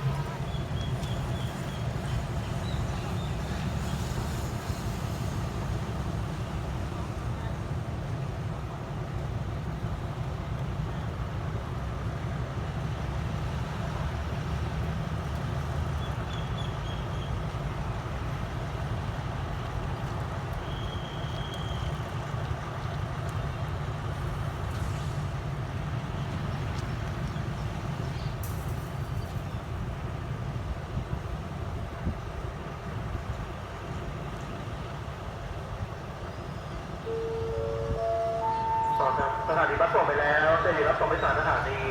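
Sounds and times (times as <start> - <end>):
train rumbling: 0.0 - 41.9
faint short high tone: 37.1 - 39.6.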